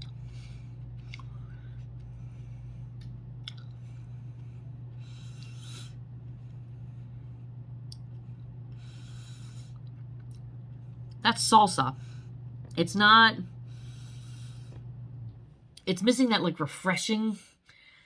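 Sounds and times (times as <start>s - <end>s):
person chewing: 0.0s - 6.7s
steady low hum: 0.0s - 16.5s.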